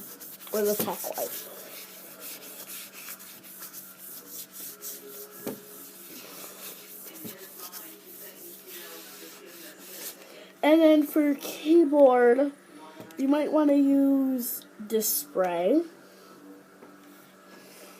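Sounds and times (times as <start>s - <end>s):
wipe rubbing laptop screen: 0.0s - 10.2s.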